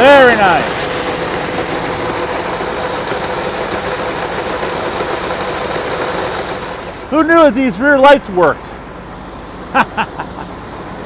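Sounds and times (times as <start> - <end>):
combine harvester running: 0.0 - 11.0
faint constant hum: 6.9 - 11.0.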